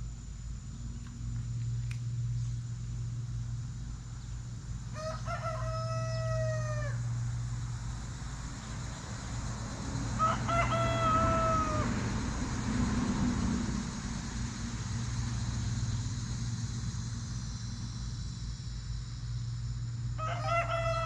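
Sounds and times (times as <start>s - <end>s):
steady low hum: 0.0s - 21.0s
rooster crowing: 4.9s - 7.2s, 10.1s - 12.2s, 20.2s - 21.0s.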